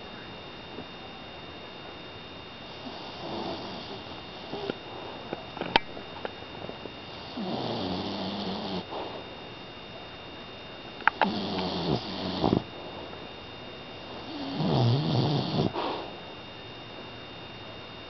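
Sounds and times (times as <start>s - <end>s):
puppy snoring: 2.7s - 5.3s, 7.1s - 9.3s, 11.0s - 13.2s, 14.0s - 16.2s.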